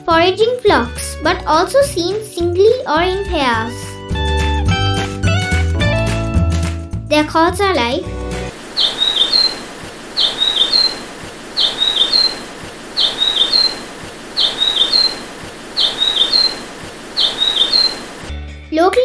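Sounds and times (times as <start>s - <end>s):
bird calling high phrase: 8.5s - 18.3s
steady background hiss: 8.5s - 18.3s.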